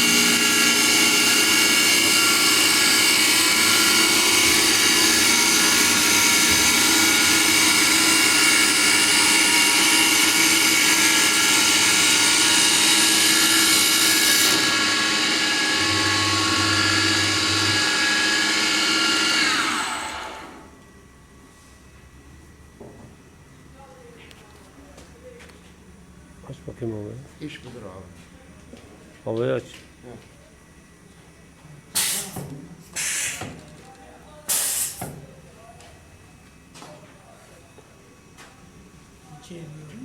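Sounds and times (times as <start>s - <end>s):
lathe motor whine: 0.0s - 20.9s.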